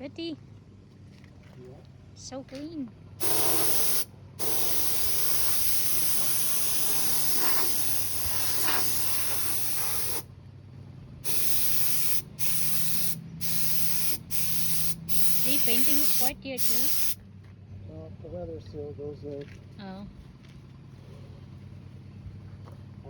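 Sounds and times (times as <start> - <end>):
paint spray gun hissing: 3.2 - 10.3, 11.2 - 17.2.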